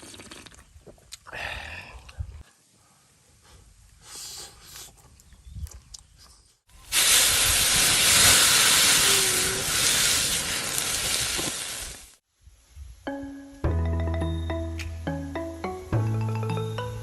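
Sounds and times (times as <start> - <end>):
food sizzling in hot oil: 6.9 - 12.2.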